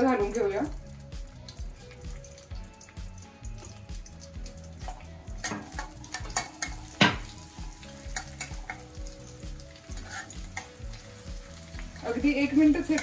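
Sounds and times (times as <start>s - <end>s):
garlic sizzling in oil: 0.0s - 13.0s
spatula scraping a wok: 9.8s - 10.9s.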